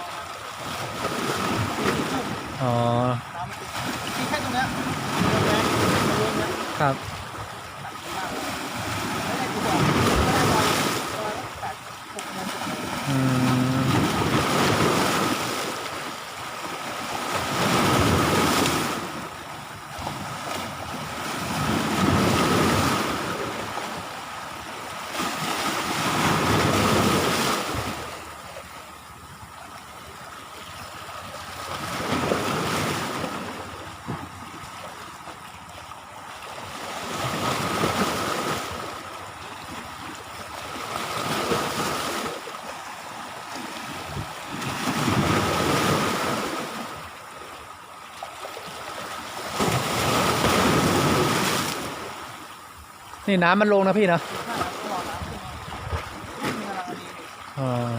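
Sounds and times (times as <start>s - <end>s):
sea waves breaking on shore: 0.0s - 57.9s
wind on microphone: 44.0s - 46.0s, 55.1s - 56.3s.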